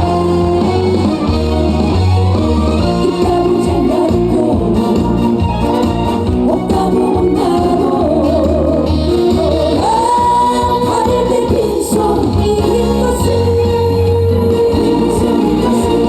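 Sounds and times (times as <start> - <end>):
band with steady bass line: 0.0 - 16.0
woman singing with vibrato: 2.9 - 5.4, 6.3 - 16.0.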